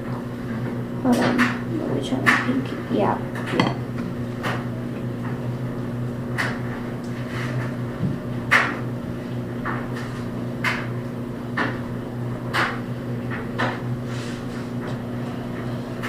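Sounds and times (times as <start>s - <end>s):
steady low hum: 0.0s - 16.0s
utensil knocking mixing bowl: 3.4s - 4.0s.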